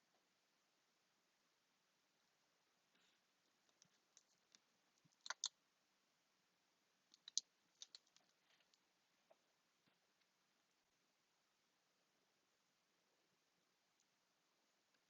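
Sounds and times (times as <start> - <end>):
hands handling craft pieces: 3.5 - 5.5, 7.1 - 10.3.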